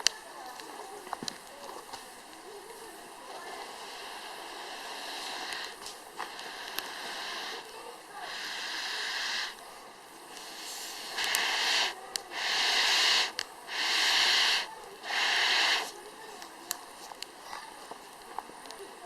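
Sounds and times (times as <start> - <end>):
wood fire crackling: 0.0 - 19.0
hissing bursts of air: 2.0 - 16.2.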